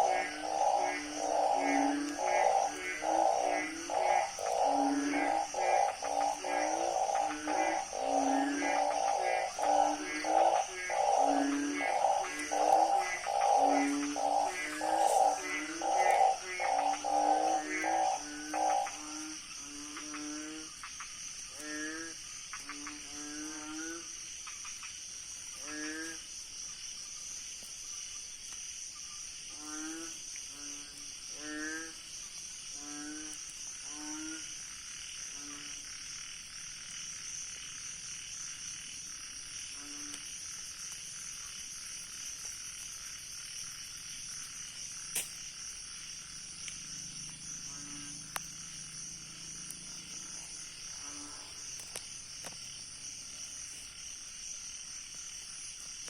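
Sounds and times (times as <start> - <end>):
crickets trilling: 0.0 - 56.0
frogs croaking: 0.0 - 56.0
sharp click: 45.1 - 45.4.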